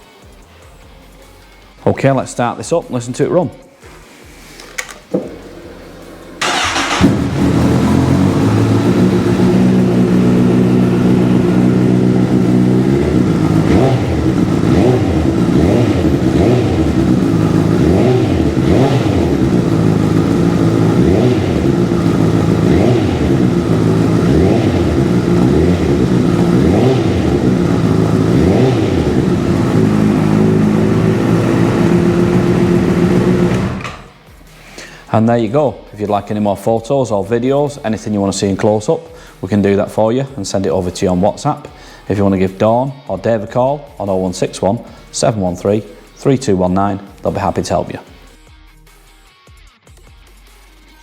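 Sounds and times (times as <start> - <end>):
motorcycle engine idling and revving: 5.1 - 34.5.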